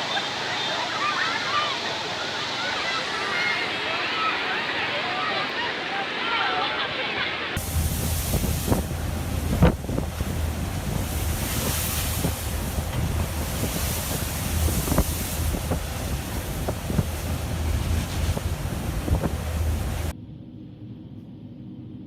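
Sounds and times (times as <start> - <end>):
heavy surf: 0.0 - 20.1
wind buffeting microphone: 7.6 - 20.1.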